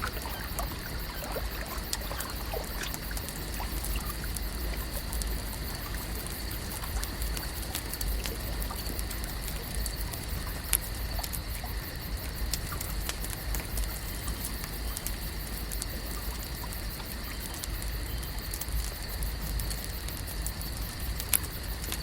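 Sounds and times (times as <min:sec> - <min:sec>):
wash of water: 0:00.0 - 0:09.0
small clicks and ticks: 0:00.0 - 0:22.0.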